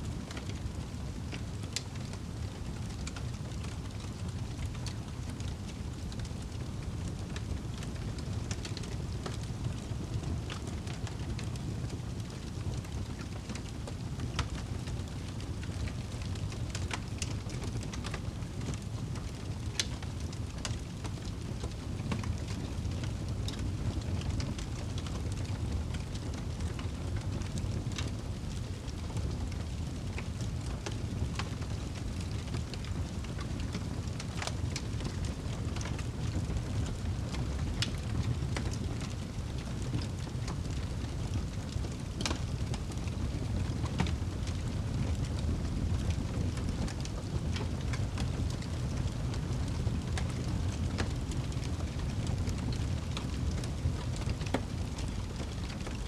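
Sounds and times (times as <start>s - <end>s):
fire crackling and popping: 0.0s - 56.0s
fire low rumble: 0.0s - 56.0s.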